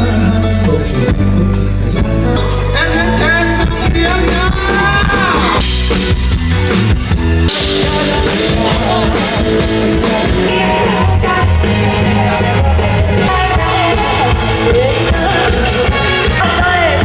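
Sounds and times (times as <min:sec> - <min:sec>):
bass guitar: 0:00.0 - 0:17.0
drums: 0:00.0 - 0:17.0
electric guitar: 0:00.0 - 0:17.0
person singing: 0:07.1 - 0:17.0.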